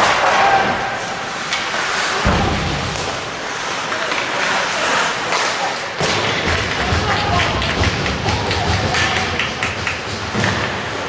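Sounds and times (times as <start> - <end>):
ice hockey play noise: 0.0 - 11.0.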